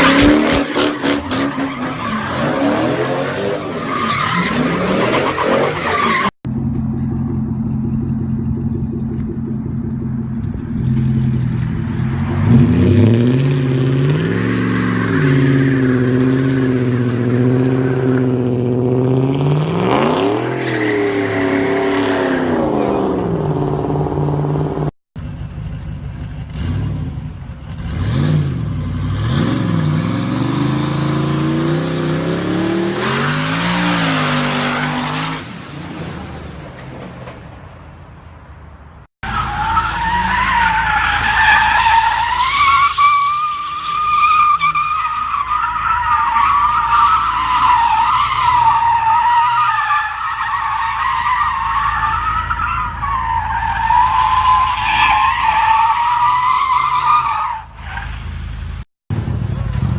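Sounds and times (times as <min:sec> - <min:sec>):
tire squeal: 0:00.0 - 0:06.3, 0:10.8 - 0:18.4, 0:19.6 - 0:23.3, 0:29.8 - 0:36.6, 0:39.2 - 0:58.6
car engines revving: 0:00.0 - 0:59.9.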